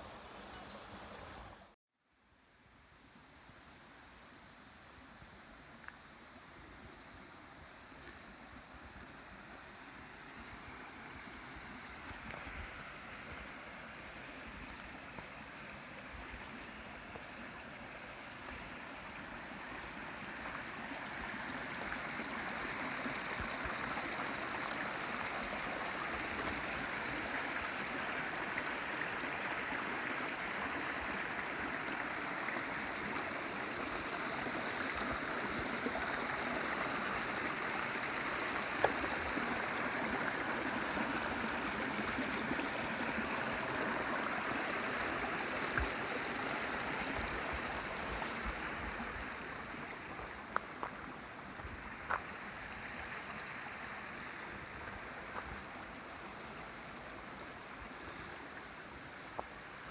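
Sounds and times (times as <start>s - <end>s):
mountain stream running: 3.0s - 59.9s.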